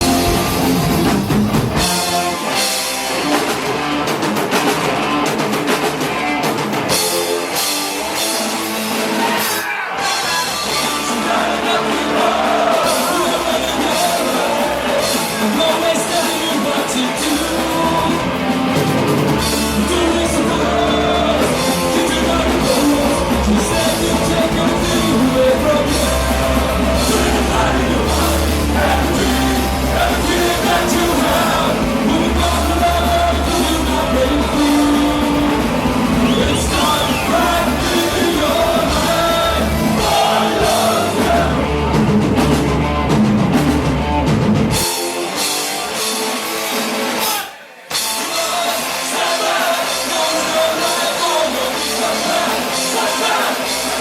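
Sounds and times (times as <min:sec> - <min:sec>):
bass guitar: 0:00.0 - 0:54.0
distorted electric guitars: 0:00.0 - 0:54.0
fast drums: 0:00.0 - 0:54.0
person singing: 0:10.0 - 0:18.8, 0:19.4 - 0:41.6, 0:47.2 - 0:54.0.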